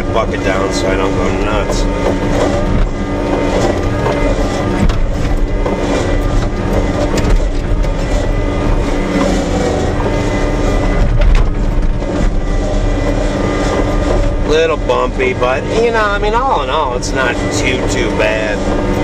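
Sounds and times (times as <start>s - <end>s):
tractor engine running: 0.0s - 19.0s
machine knocks and rattles: 1.3s - 14.6s.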